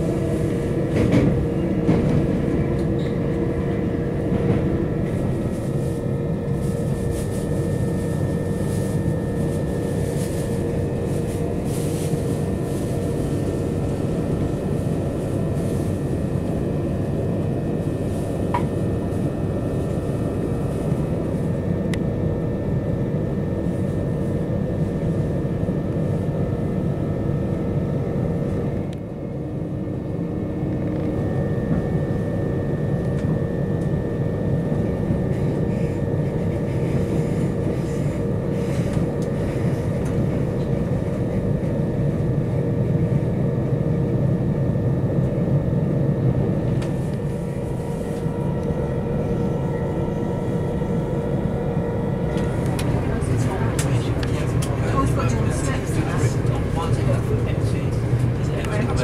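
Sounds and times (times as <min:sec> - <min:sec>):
wheels rumbling on track: 0:00.0 - 0:22.0, 0:45.2 - 0:59.0
steady train hum: 0:00.0 - 0:59.0.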